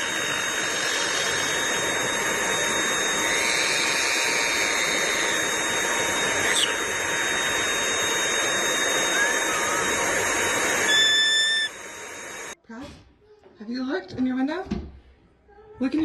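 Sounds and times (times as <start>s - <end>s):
electric motor and fan running: 0.0s - 12.6s
faint high steady tones: 0.0s - 12.6s.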